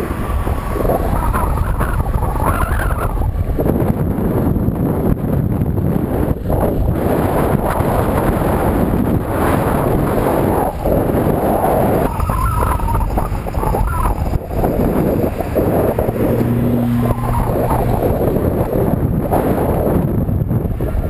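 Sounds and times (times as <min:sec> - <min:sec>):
road traffic: 0:00.0 - 0:21.0
wind buffeting microphone: 0:00.0 - 0:21.0
low steady hum: 0:10.5 - 0:20.6.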